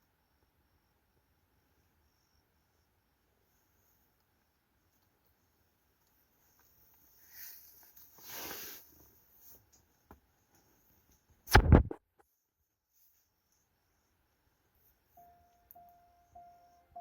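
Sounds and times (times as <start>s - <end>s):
crickets and insects chirping: 0.0s - 10.0s, 13.3s - 17.0s
soft rustle: 3.5s - 11.3s.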